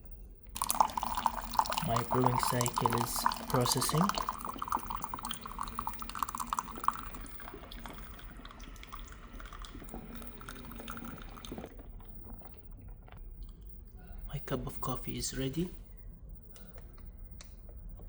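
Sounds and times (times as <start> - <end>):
coffee streaming into a mug: 0.5 - 13.5.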